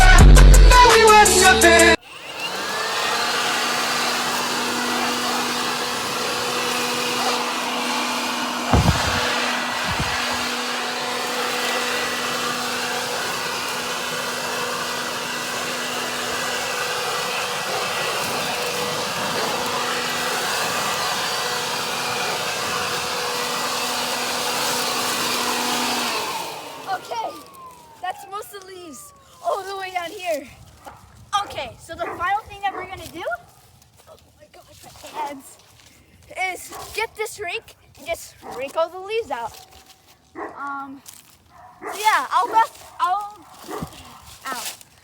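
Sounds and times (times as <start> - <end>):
leaf blower running: 0.0 - 37.2, 37.9 - 45.0
low thumps: 8.7 - 10.6.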